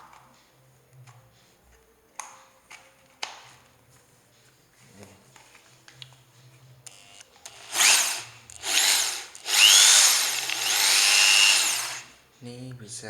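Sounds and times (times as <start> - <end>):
electric drill whirring: 6.9 - 12.2.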